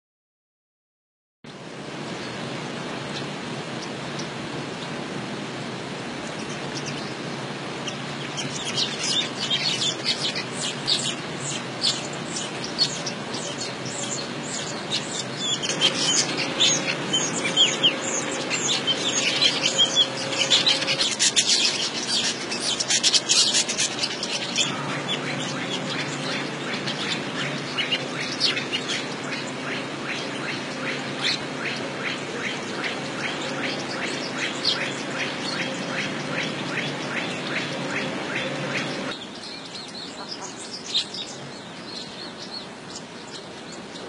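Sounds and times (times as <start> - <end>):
birds chattering: 6.2 - 44.0.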